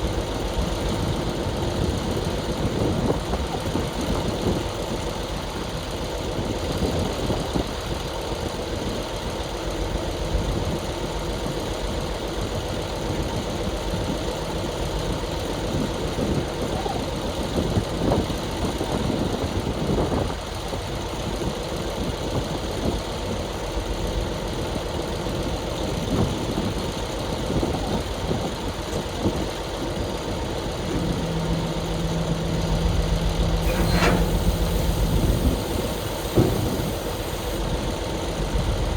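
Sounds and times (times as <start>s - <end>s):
heavy diesel engine running: 20.6s - 38.9s.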